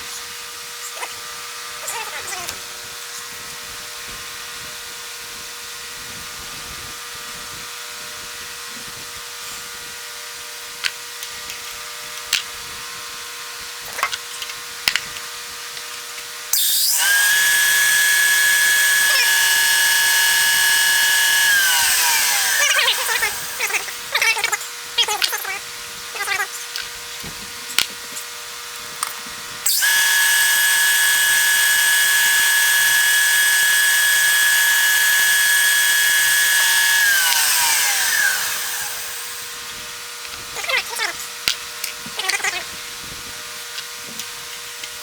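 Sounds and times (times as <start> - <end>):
power drill motor whine: 16.5 - 24.6, 29.6 - 40.5
sharp clicks: 29.7 - 39.5.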